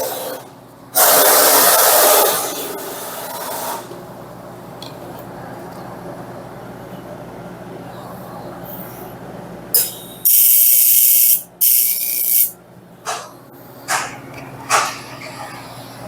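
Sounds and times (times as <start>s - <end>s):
welding arc hissing: 9.8s - 12.6s.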